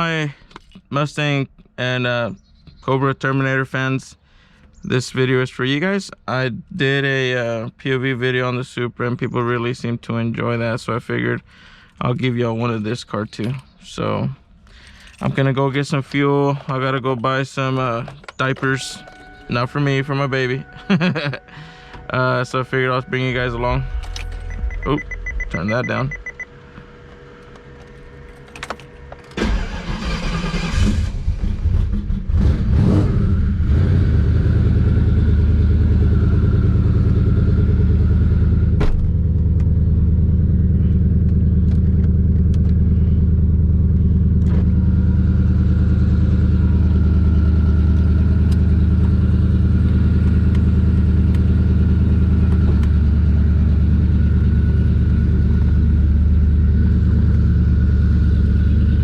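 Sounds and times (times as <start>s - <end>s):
car engine starting and idling: 3.0s - 59.0s.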